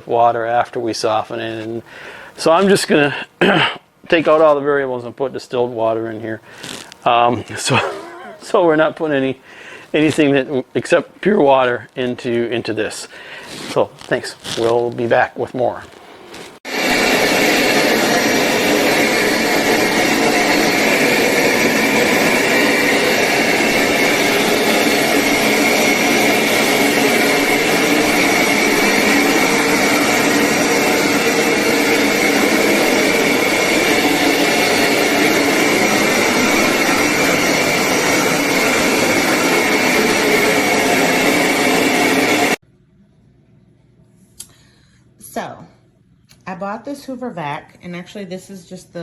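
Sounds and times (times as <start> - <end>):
carpet cleaner motor airy rush: 15.8 - 42.6
high motor whine: 16.7 - 42.6.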